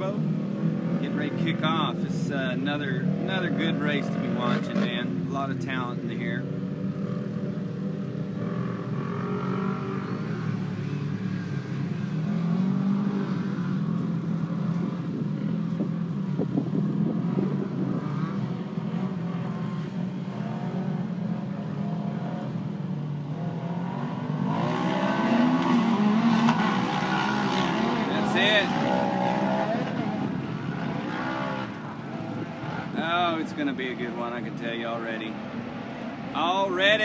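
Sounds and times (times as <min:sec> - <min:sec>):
race vehicle engines revving: 0:00.0 - 0:37.0.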